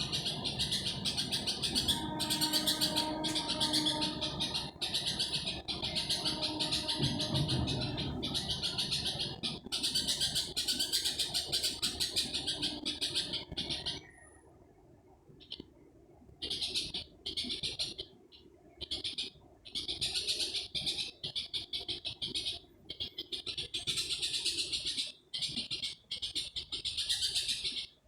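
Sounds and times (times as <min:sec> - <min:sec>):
rhythmic high-pitched pulsing call: 0:00.0 - 0:13.4.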